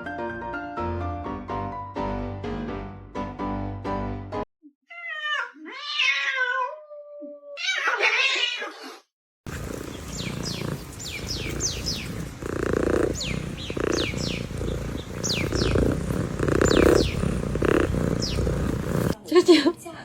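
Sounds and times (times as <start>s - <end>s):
cat meowing: 4.9s - 9.0s, 9.8s - 19.2s
small birds chirping: 9.5s - 19.2s
cat purring: 9.5s - 19.5s.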